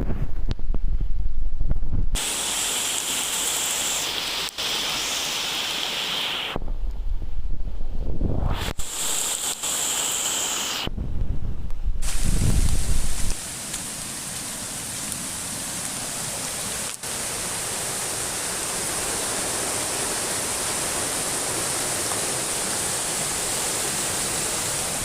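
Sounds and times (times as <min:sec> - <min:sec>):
rain: 0:02.2 - 0:06.6, 0:08.6 - 0:10.9, 0:12.0 - 0:25.0
river rushing: 0:02.2 - 0:06.6, 0:08.8 - 0:10.9, 0:12.0 - 0:25.0.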